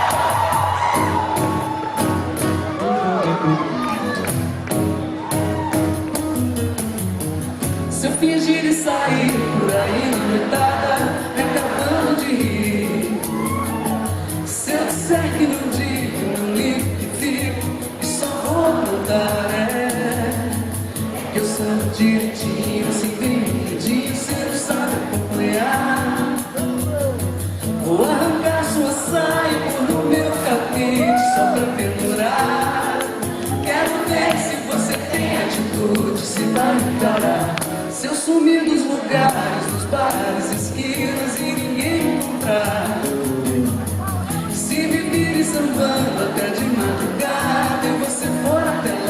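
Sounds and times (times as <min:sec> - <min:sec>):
live band playing pop song: 0:00.0 - 0:49.0
person singing: 0:07.9 - 0:49.0
steady percussion: 0:09.2 - 0:38.0.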